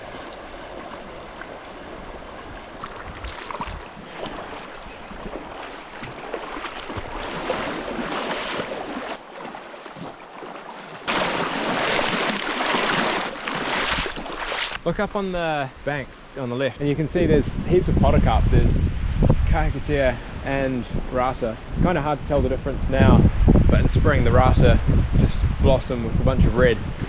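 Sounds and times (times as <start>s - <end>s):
people wading through water: 0.0s - 14.8s
river rushing: 0.0s - 14.8s.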